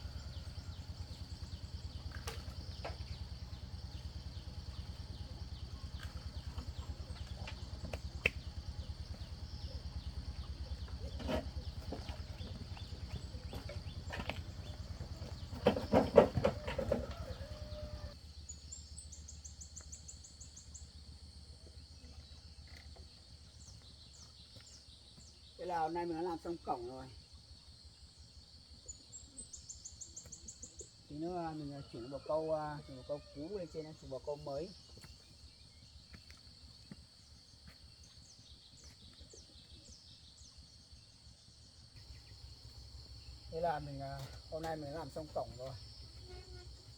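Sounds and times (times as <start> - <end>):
low rapid pulsing hum: 0.0 - 21.6, 42.0 - 46.9
quiet outdoor ambience: 0.0 - 46.9
knocks and clatter: 10.8 - 17.5
high insect trill: 41.2 - 46.9.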